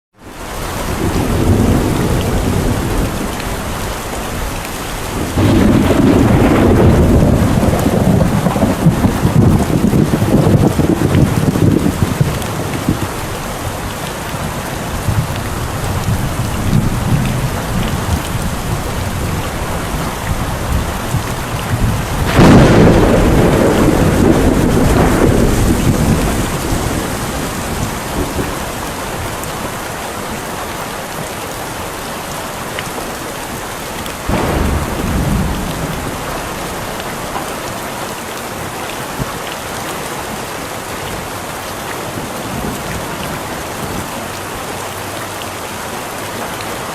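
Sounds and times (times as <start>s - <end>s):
heavy rain: 0.1s - 46.9s
thunder rumbling: 0.6s - 30.4s, 34.2s - 38.0s.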